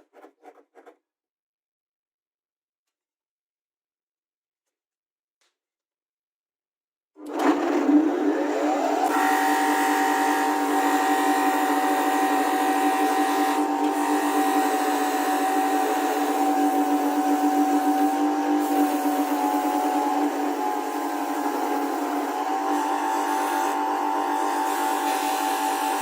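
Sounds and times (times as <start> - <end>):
power tool motor whining: 7.2 - 26.0.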